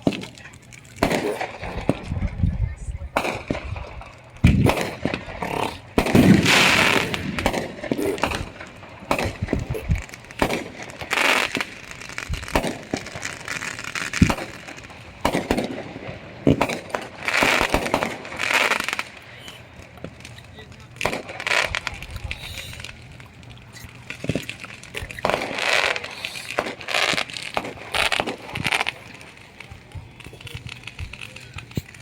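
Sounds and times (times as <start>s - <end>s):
firecrackers crackling: 0.0s - 32.0s
fireworks bangs: 0.0s - 32.0s.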